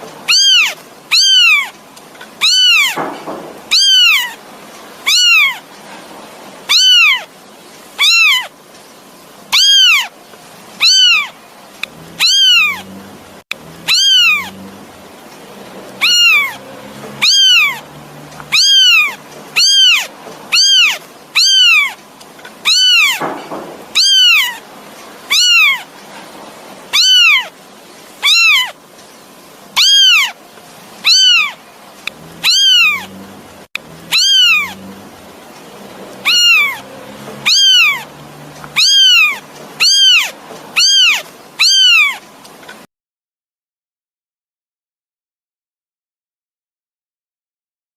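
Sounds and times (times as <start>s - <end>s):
kitten meowing: 0.2s - 1.8s, 2.4s - 4.4s, 5.0s - 5.7s, 6.7s - 7.3s, 8.0s - 8.5s, 9.5s - 10.1s, 10.8s - 11.4s, 12.0s - 12.9s, 13.8s - 14.7s, 16.0s - 22.0s, 22.6s - 24.6s, 25.3s - 25.9s, 26.9s - 27.5s, 28.2s - 28.8s, 29.8s - 30.4s, 31.0s - 33.2s, 34.0s - 34.9s, 36.2s - 42.2s.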